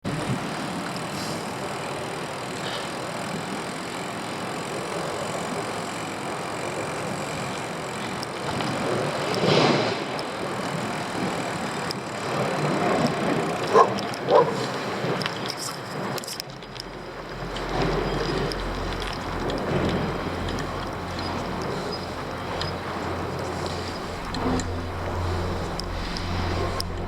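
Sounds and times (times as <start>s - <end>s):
road traffic noise: 0.0s - 27.0s
vehicle passing: 17.2s - 27.0s.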